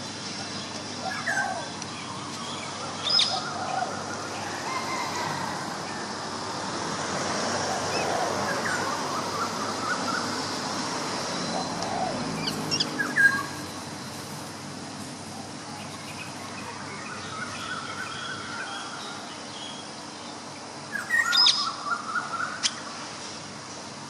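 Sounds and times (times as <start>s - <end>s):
steady background hiss: 0.0s - 24.0s
bird chirps and calls: 0.4s - 5.0s, 11.3s - 13.9s, 20.9s - 22.8s.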